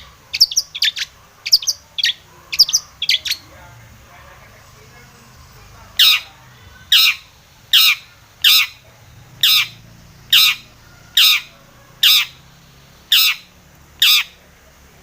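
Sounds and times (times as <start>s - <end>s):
shrike harsh scratchy calls: 4.5s - 14.4s.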